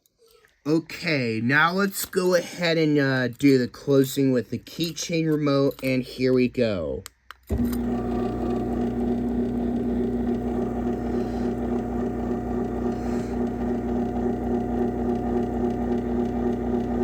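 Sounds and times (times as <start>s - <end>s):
garage door opener motor humming: 7.5s - 17.0s.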